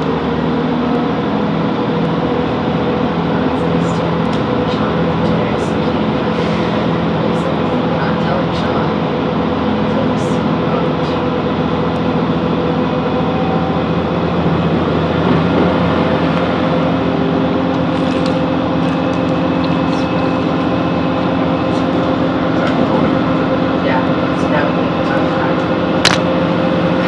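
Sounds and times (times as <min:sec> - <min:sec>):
train diesel engine drone: 0:00.0 - 0:27.0.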